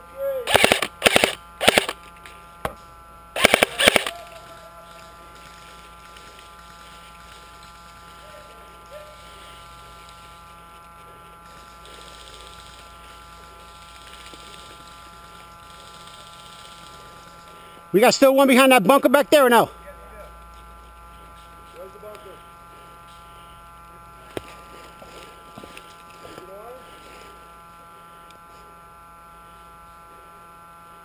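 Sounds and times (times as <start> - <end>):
faint electrical hum: 0.0 - 31.0
airsoft gun rapid bursts: 0.4 - 2.0, 3.4 - 7.7, 11.5 - 17.3.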